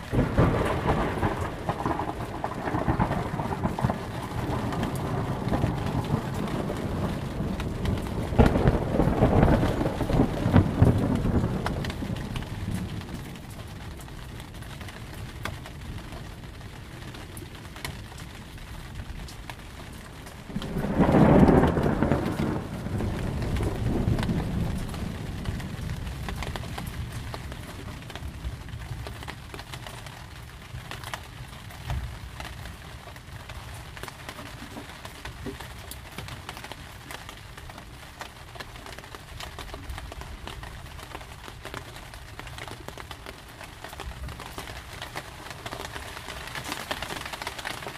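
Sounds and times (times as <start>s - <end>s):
thunderclap rumbling: 0.0s - 29.4s
steady rain falling: 0.0s - 47.9s.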